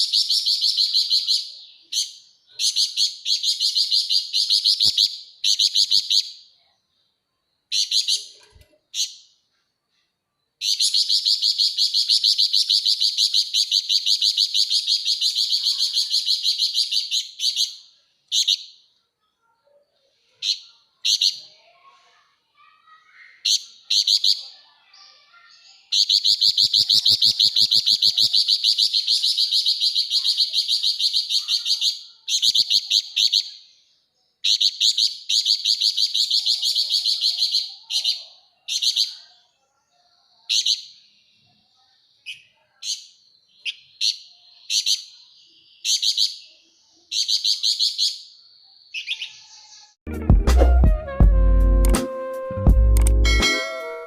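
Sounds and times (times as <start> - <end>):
bird chattering trills: 10.6 - 17.7, 25.5 - 33.5.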